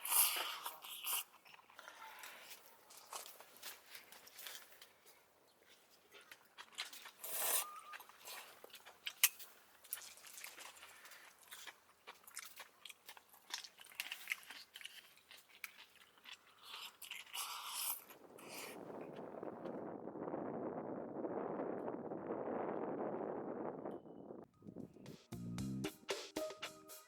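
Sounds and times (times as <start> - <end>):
crunching and clicking: 0.2 - 7.3, 7.9 - 18.4.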